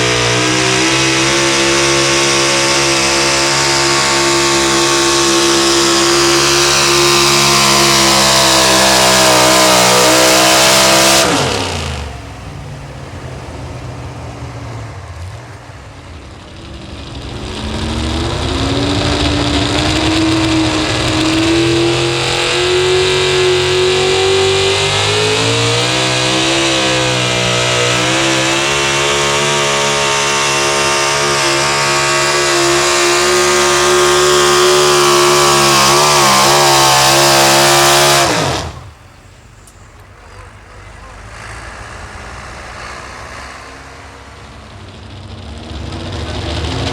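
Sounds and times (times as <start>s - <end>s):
truck engine revving: 0.0s - 46.9s.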